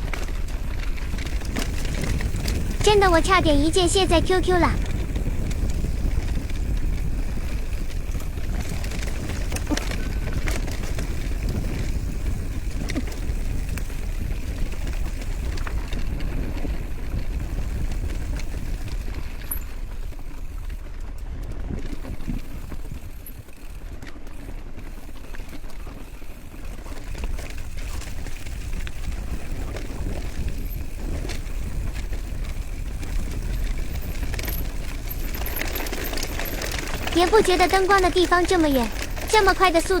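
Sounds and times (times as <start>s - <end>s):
wind rushing over microphone: 4.7s - 14.8s.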